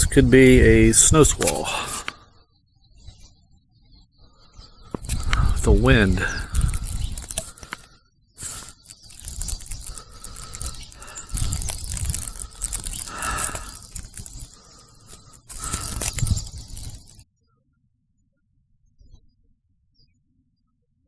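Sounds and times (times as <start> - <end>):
gusty wind buffeting microphone: 4.9 - 7.4.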